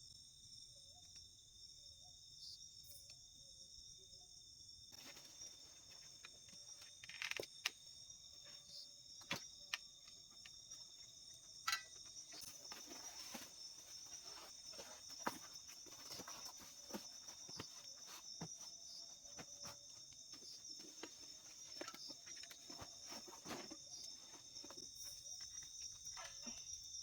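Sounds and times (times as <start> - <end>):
insects trilling: 0.0 - 27.0
faint rustling: 12.0 - 26.6.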